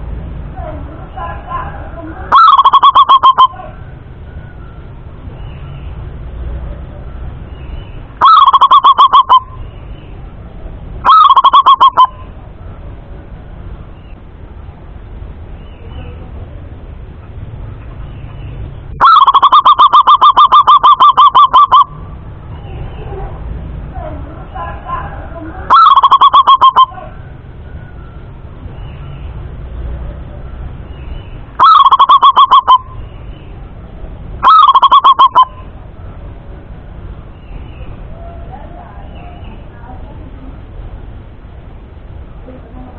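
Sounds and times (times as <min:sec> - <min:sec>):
dove cooing: 0:02.3 - 0:03.6, 0:08.2 - 0:09.5, 0:11.1 - 0:12.2, 0:19.0 - 0:21.9, 0:25.7 - 0:27.0, 0:31.6 - 0:32.9, 0:34.4 - 0:35.6.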